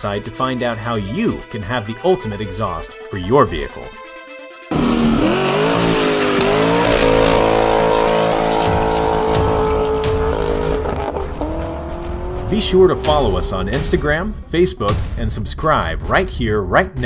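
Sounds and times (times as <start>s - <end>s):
truck engine revving: 4.7s - 14.0s.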